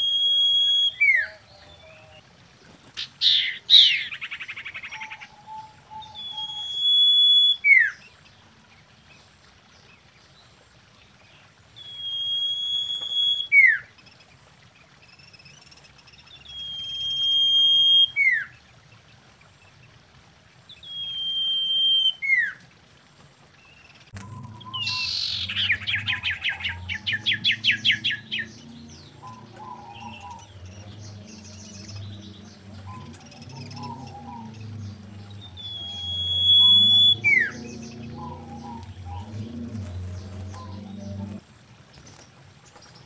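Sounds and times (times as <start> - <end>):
bird whistling song: 0.0 - 2.2, 3.0 - 8.1, 11.8 - 13.9, 16.3 - 18.6, 20.7 - 22.6, 24.2 - 41.4.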